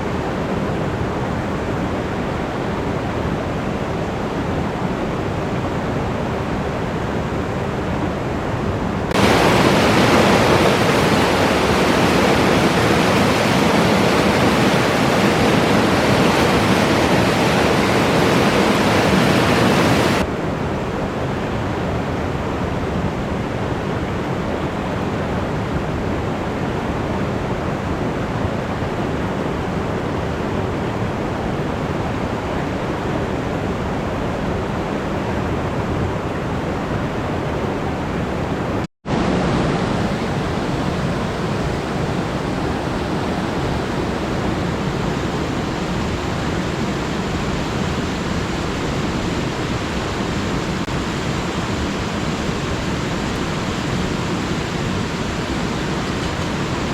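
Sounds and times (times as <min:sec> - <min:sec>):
river rushing over rocks: 0:07.8 - 0:20.3, 0:39.1 - 0:56.9.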